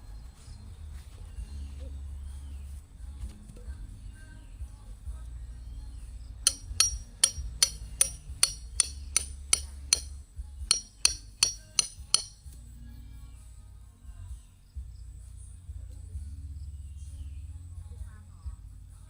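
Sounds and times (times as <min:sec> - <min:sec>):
hammer striking metal tent peg: 0:06.5 - 0:12.4.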